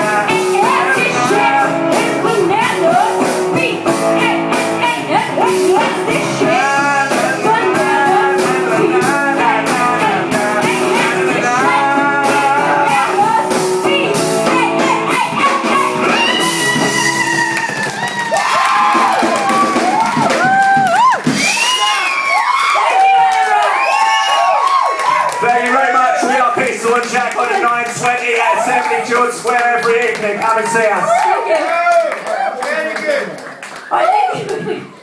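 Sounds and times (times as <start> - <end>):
person singing: 0.0 - 17.8
rock-pop guitar with beat: 0.0 - 18.2.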